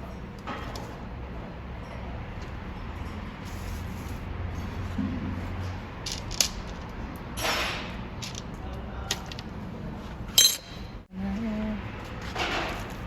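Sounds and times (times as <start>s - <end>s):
metal tools clinking: 10.3s - 11.0s.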